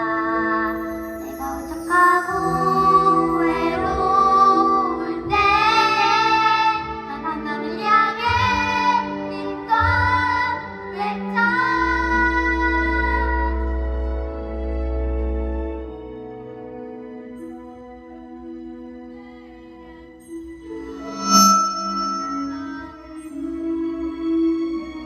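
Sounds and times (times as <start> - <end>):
children singing: 1.7 - 13.6
instrumental accompaniment: 20.2 - 25.0.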